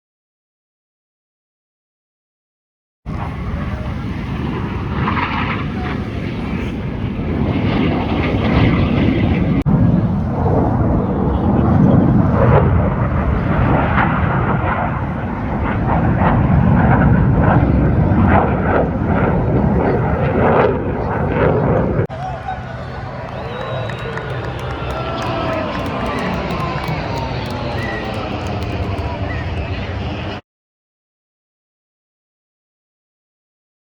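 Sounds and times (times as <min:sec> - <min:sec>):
jet aircraft rumble: 0:03.1 - 0:30.4.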